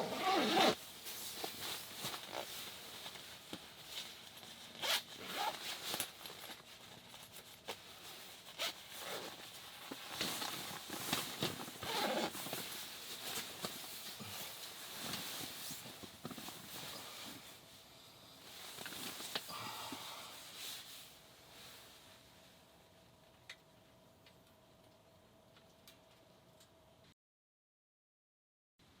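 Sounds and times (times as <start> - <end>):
zipper rasping: 0.0 - 0.8, 4.8 - 5.7, 8.5 - 9.4, 11.0 - 12.6
fabric rustling: 0.0 - 17.8, 18.4 - 19.5.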